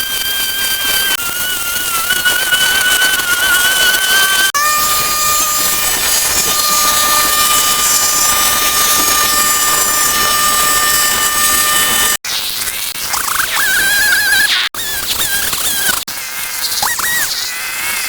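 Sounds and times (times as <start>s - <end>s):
loud hiss: 0.0s - 12.2s
small machine whining: 0.0s - 12.2s, 13.1s - 16.1s.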